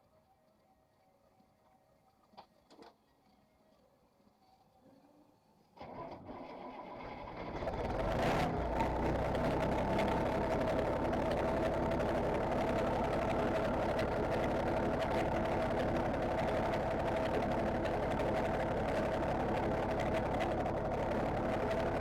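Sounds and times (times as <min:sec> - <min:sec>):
diesel truck engine running loud: 0:07.1 - 0:22.0.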